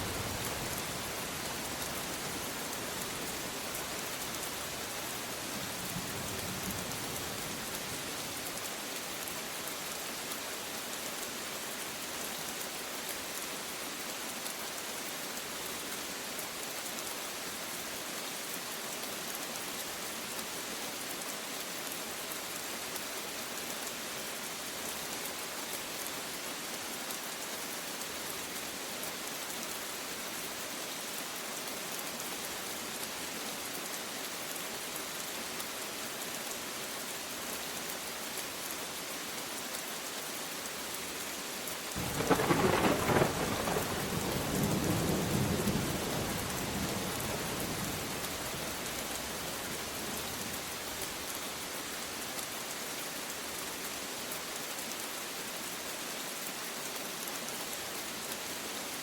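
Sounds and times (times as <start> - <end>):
steady rain hiss: 0.0 - 59.0
faint distant thunder rumble: 42.0 - 48.6.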